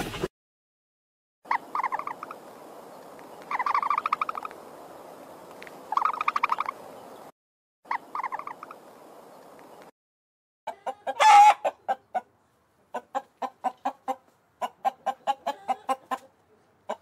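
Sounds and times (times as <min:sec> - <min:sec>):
bird trilling call: 0:03.5 - 0:04.5, 0:05.9 - 0:06.8, 0:07.9 - 0:08.8.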